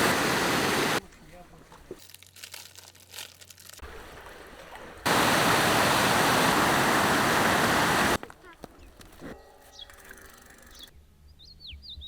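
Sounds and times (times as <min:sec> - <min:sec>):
rush of flowing water: 0:00.0 - 0:01.0, 0:03.8 - 0:08.2.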